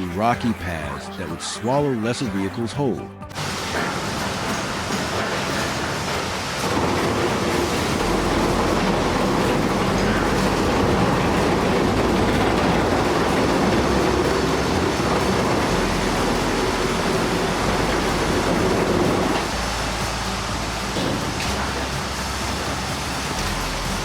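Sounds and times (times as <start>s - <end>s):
heavy machinery rumbling: 3.3s - 24.0s.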